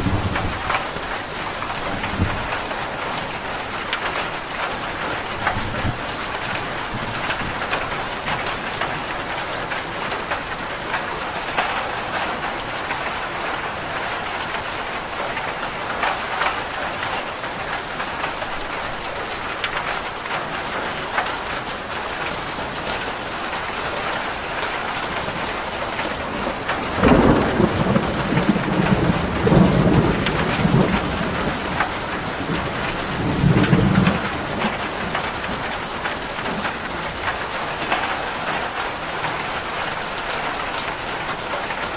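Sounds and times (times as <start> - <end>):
thunder rumbling: 0.0 - 1.1, 25.1 - 37.2
rain on a roof: 0.0 - 41.9.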